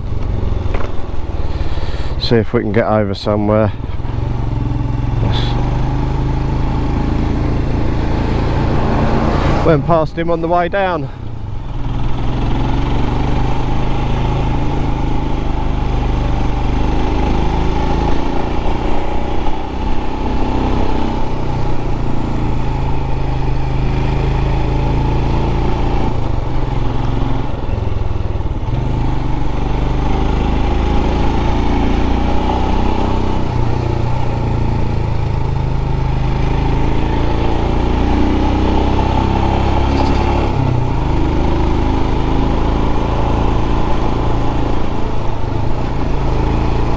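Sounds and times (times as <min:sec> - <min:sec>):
motorcycle engine running: 0:00.0 - 0:46.9
wind rush: 0:06.8 - 0:10.0.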